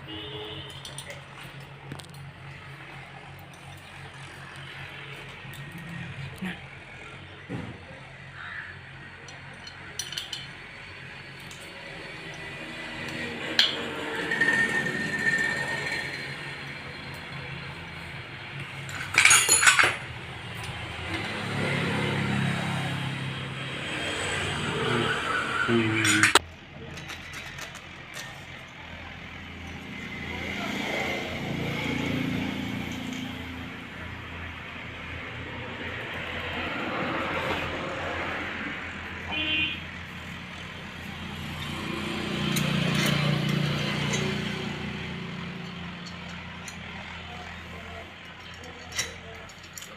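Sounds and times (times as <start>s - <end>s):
vehicle horn toot: 0.0s - 1.0s, 39.3s - 39.9s
road traffic passing: 0.0s - 49.9s
vehicle engine hum: 0.0s - 49.9s
metal parts clinking: 0.7s - 2.3s, 9.3s - 10.6s, 18.6s - 21.4s, 26.0s - 28.6s, 41.5s - 47.5s, 48.1s - 49.9s.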